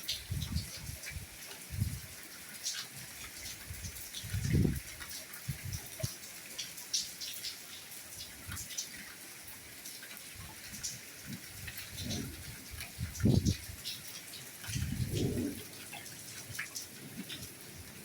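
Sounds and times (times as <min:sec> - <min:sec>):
soft rain hiss: 0:00.0 - 0:18.0.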